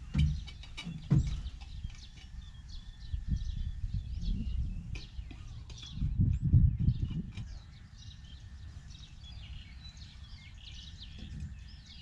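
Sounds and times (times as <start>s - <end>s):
sharp knocks: 0.0s - 1.7s
small birds chirping: 0.0s - 12.0s.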